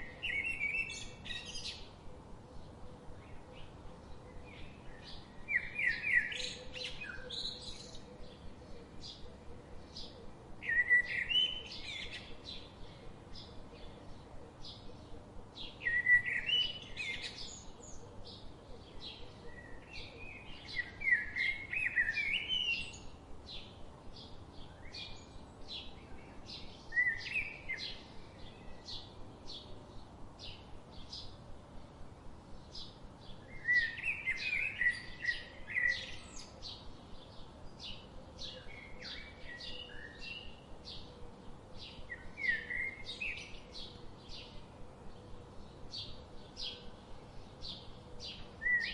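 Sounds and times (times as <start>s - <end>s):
bird warbling song: 0.0s - 31.4s, 32.6s - 48.9s.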